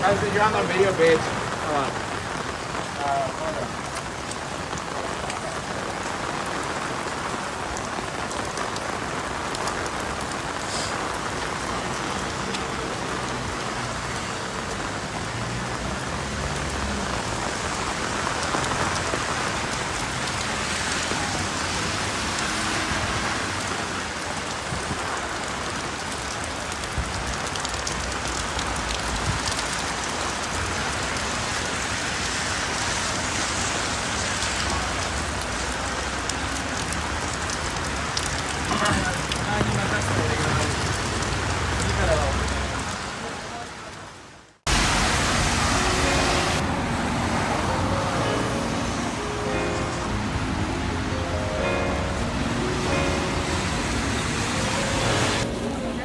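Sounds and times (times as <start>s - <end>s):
rain tapping on umbrella: 0.0s - 43.2s.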